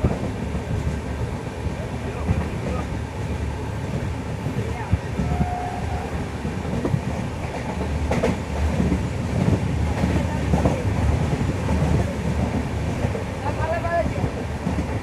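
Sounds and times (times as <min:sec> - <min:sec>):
train rumbling along track: 0:00.0 - 0:15.0
knocks from train wheels: 0:04.8 - 0:13.3.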